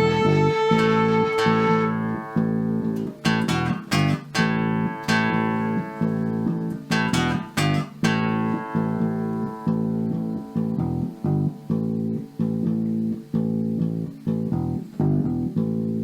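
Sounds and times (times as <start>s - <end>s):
fiddle held note: 0.0s - 2.8s
acoustic guitar strumming: 0.0s - 16.0s.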